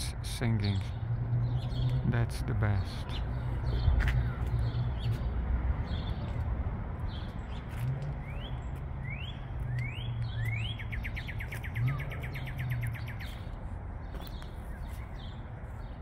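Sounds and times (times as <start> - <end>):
songbird whistling and trilling: 8.2 - 13.4.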